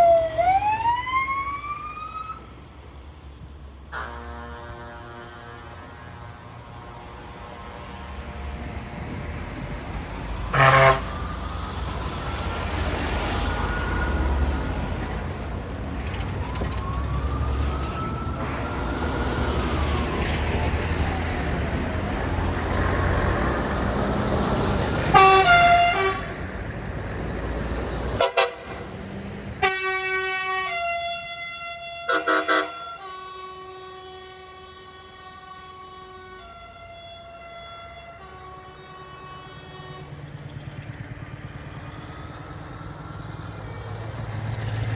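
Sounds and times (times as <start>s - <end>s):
heavy trucks driving past: 0.0s - 44.9s
truck air horn blasts: 3.9s - 6.2s, 10.5s - 11.2s, 25.1s - 26.4s, 28.2s - 28.8s, 29.6s - 40.1s
long multi-note truck horns: 3.9s - 6.6s, 10.5s - 11.2s, 25.0s - 26.5s, 28.2s - 28.9s, 29.6s - 40.3s.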